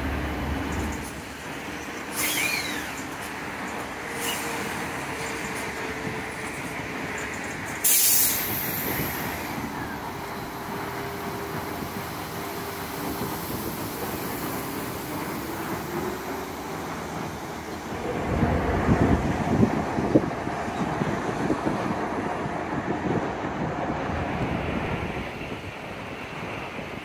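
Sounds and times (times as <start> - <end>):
train rolling rumble: 0.0 - 27.0
air brake hiss: 7.8 - 9.5.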